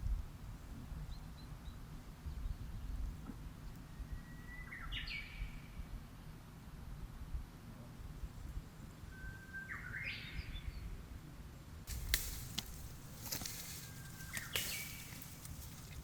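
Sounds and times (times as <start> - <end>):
low outdoor rumble: 10.5 - 16.0
bird calling: 11.9 - 16.0
rustling hiss: 11.9 - 16.0.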